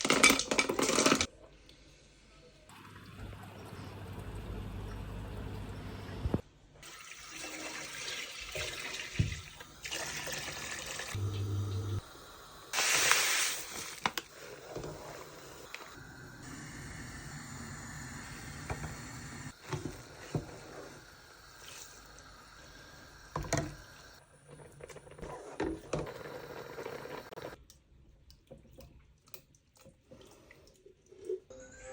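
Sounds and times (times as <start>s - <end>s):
liquid pouring and sloshing: 6.8s - 12.0s, 28.0s - 31.5s.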